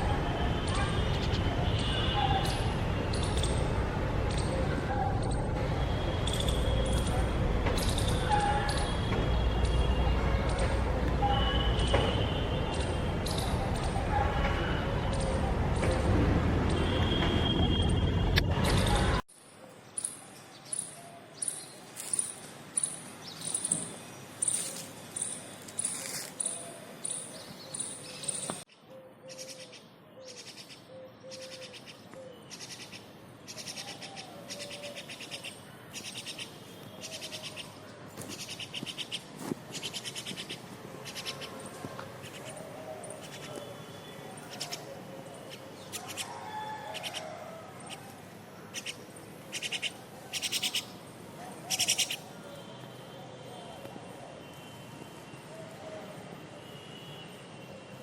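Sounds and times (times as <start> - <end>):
myna birds calling: 20.0 - 52.6.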